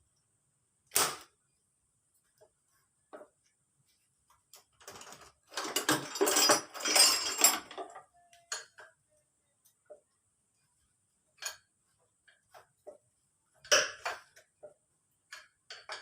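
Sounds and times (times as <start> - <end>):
metal tools clinking and clattering: 4.8 - 8.8.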